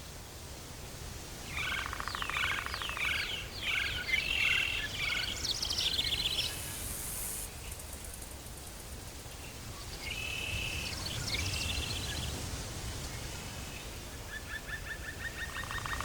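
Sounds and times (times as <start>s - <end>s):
brief high hiss: 6.4s - 7.6s.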